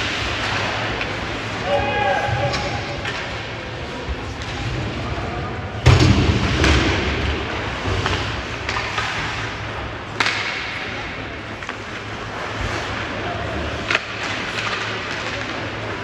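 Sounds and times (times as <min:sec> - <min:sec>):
hockey puck and stick thuds: 0:05.8 - 0:16.0.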